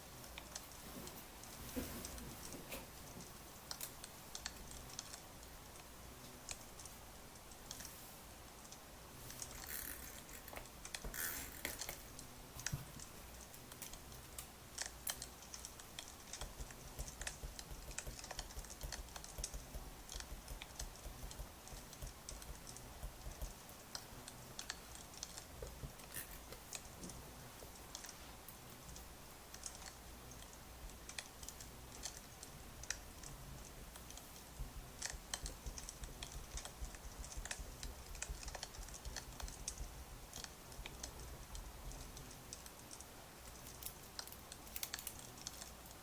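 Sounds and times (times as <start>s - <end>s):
faint hiss: 0.0s - 46.0s
firewood crackling and popping: 8.6s - 28.6s, 29.5s - 46.0s.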